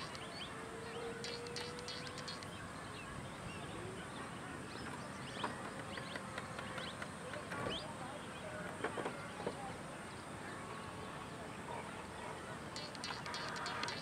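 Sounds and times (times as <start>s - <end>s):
birds chirping: 0.0s - 14.0s
sharp clicks: 1.2s - 2.6s, 12.8s - 14.0s.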